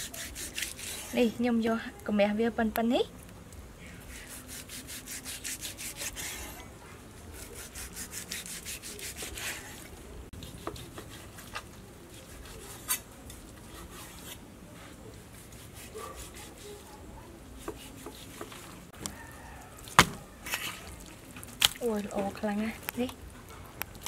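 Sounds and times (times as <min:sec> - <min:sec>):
cleaver sawing through meat: 0:00.0 - 0:01.2, 0:04.1 - 0:06.6, 0:07.4 - 0:13.0, 0:13.6 - 0:14.4, 0:15.4 - 0:16.9.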